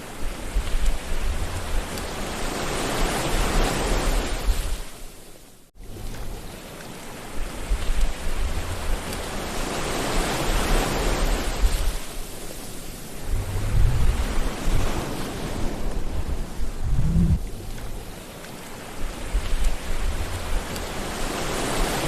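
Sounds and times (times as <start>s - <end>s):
waves breaking on shore: 0.0s - 5.4s, 6.0s - 22.0s
low surf rumble: 12.9s - 18.2s.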